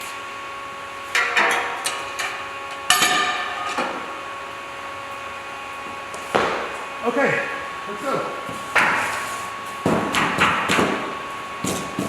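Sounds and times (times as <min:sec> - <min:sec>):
metal clanks and knocks: 0:01.2 - 0:04.1.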